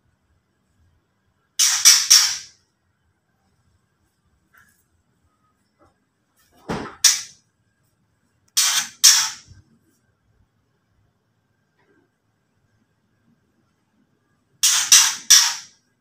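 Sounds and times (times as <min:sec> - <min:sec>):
bird harsh rattling call: 0:01.6 - 0:02.5, 0:08.6 - 0:09.5, 0:14.6 - 0:15.8.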